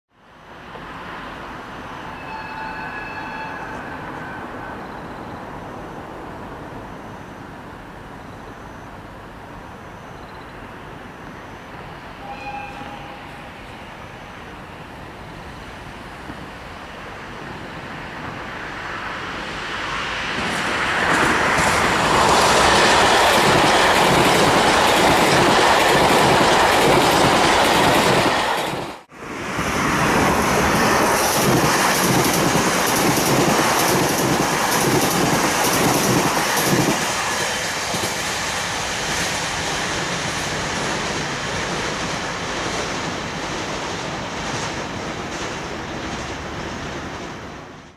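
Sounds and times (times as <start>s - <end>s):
electric train passing: 0.2s - 47.9s
wheels clattering over rail joints: 40.7s - 47.9s.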